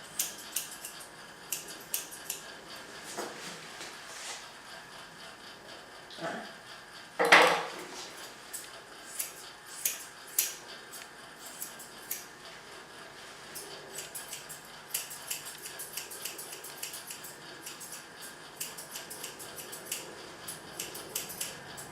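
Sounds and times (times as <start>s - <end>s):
grooming scissors snipping fur: 0.1s - 2.5s, 8.2s - 12.3s, 13.5s - 21.9s.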